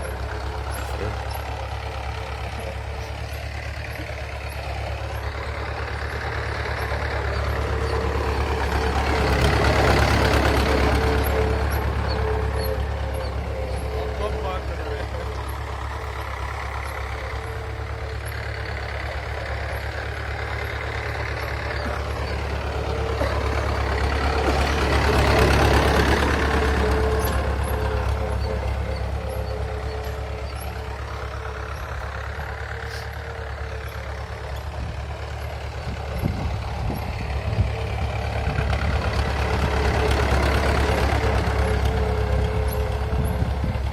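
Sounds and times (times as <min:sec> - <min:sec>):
tractor engine droning: 0:00.0 - 0:43.9.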